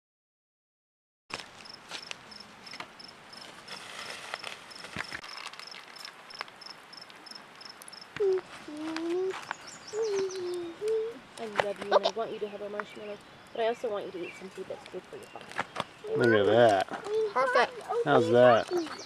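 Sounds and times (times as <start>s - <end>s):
crickets chirping: 1.3s - 19.0s
person speaking: 8.2s - 9.4s, 10.0s - 19.0s.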